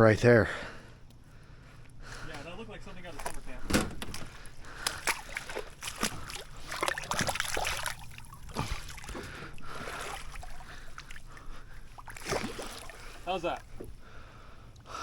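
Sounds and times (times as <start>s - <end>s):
water sloshing around boat: 0.8s - 15.0s.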